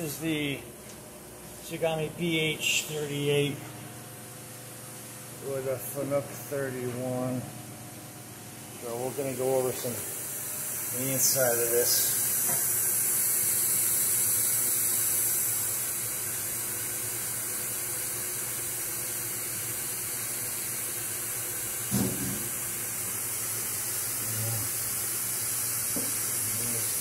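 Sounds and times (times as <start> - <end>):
steady hiss: 8.8 - 16.6, 21.8 - 27.0
single knock: 21.9 - 22.5.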